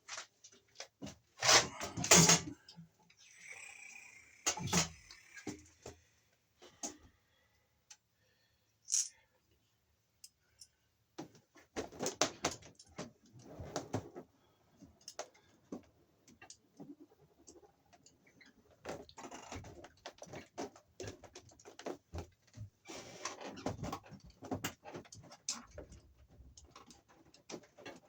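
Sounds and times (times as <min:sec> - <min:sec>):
hand tools clicking and scraping: 0:01.4 - 0:02.6, 0:03.2 - 0:05.7, 0:08.9 - 0:09.2.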